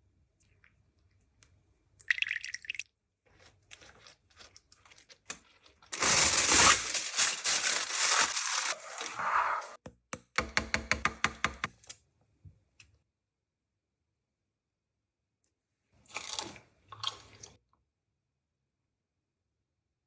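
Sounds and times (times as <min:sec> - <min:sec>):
loud dense crinkling: 0:05.9 - 0:09.0.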